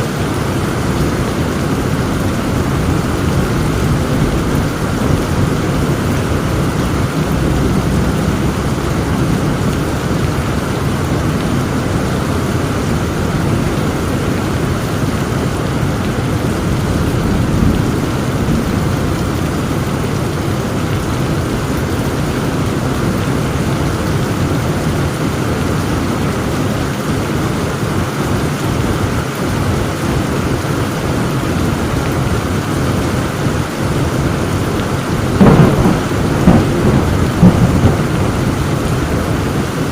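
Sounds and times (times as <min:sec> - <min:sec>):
low rolling thunder: 0:00.0 - 0:25.1, 0:32.9 - 0:39.9
heavy rain falling: 0:00.0 - 0:39.9.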